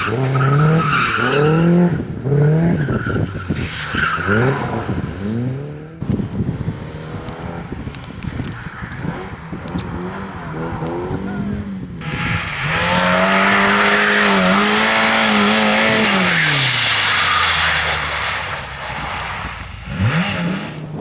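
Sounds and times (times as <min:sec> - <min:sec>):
rally car passing at speed: 0:12.0 - 0:21.0
tyre noise rush: 0:12.0 - 0:21.0.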